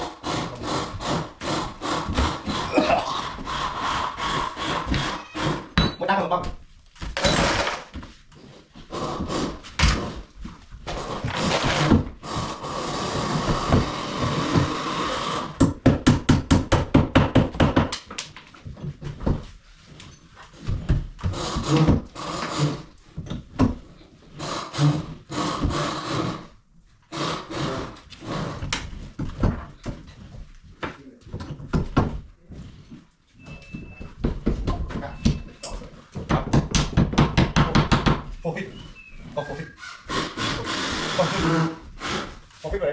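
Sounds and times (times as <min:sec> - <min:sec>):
hand tool scraping wood: 0:00.0 - 0:05.8, 0:07.2 - 0:15.6, 0:19.8 - 0:30.4, 0:38.3 - 0:42.9
knocks on wood: 0:15.6 - 0:18.1, 0:36.2 - 0:38.3.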